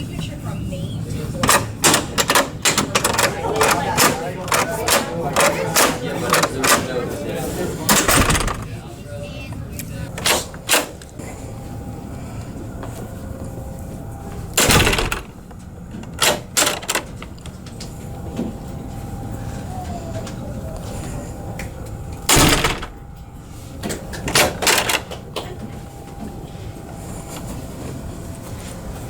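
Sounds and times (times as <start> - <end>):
door latch and knob clicks: 1.4 - 6.9, 7.9 - 8.7, 14.6 - 15.4, 22.3 - 23.0
door thumping against frame: 7.9 - 8.8, 14.6 - 15.5, 22.3 - 23.1.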